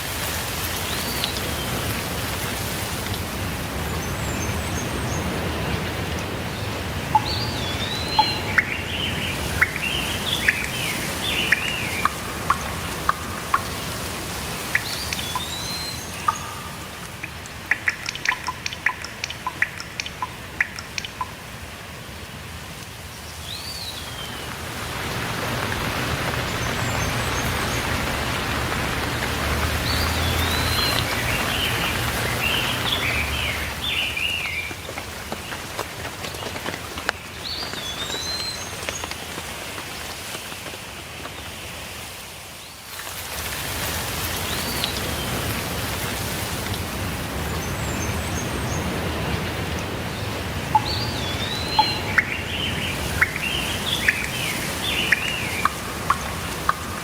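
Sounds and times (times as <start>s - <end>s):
rain falling: 0.0s - 57.0s
songbirds chirping: 0.6s - 21.6s, 22.8s - 39.3s, 44.3s - 57.0s
sharp water drops: 5.8s - 21.7s, 23.6s - 39.2s, 49.6s - 57.0s.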